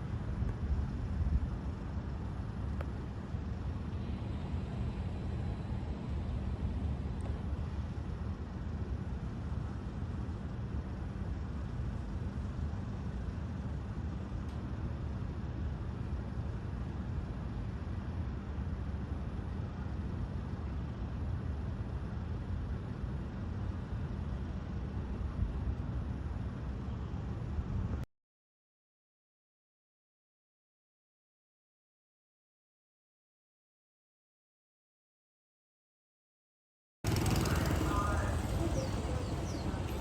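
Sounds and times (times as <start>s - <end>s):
traffic rumble: 37.1s - 40.0s.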